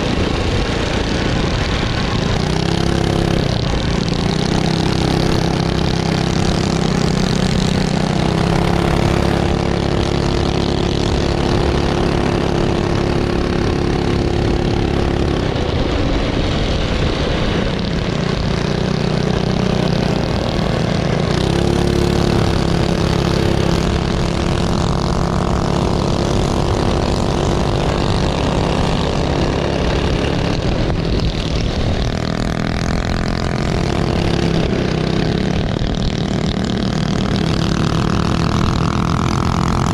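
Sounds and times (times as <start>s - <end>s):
minibike engines revving: 0.0s - 39.9s.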